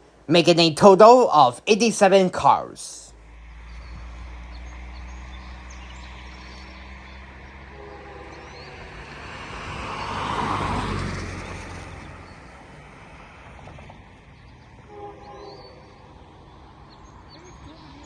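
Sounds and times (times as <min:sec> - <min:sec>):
road vehicle passing: 0:02.4 - 0:18.0.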